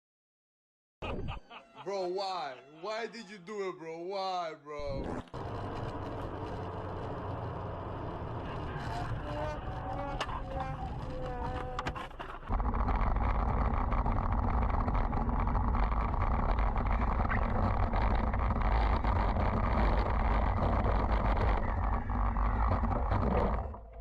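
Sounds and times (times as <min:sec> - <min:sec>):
vehicle road and wind noise: 0:05.4 - 0:11.9.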